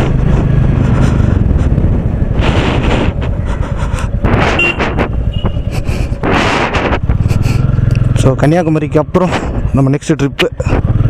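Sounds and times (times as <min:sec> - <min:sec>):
motorcycle engine thumping: 0:00.0 - 0:08.3
passing road noise rushes: 0:00.0 - 0:11.0.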